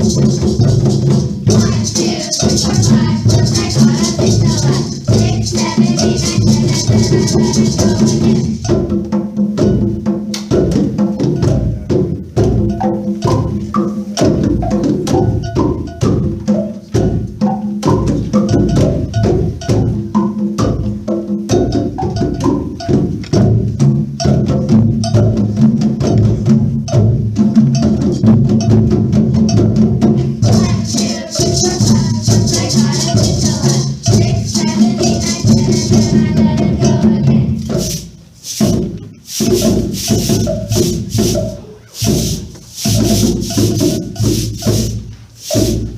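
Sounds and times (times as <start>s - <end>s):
high rattling: 0.0s - 8.8s, 29.5s - 45.9s
percussion ensemble playing a tune: 0.0s - 45.9s.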